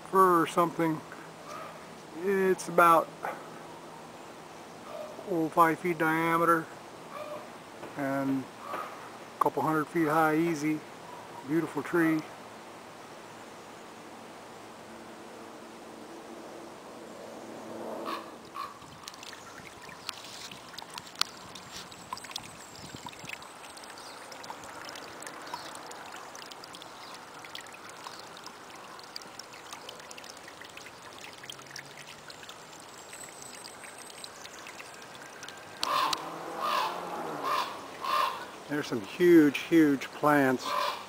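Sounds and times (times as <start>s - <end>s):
faint hiss of running water: 0.0s - 16.3s, 18.4s - 41.0s
bird calls: 18.0s - 27.3s, 32.8s - 38.6s, 40.6s - 41.0s.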